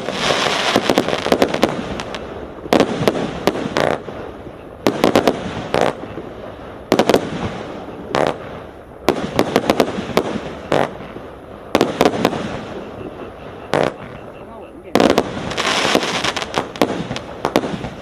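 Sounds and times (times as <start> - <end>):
firework bangs: 0.0 - 18.0
firework crackling: 0.0 - 18.0.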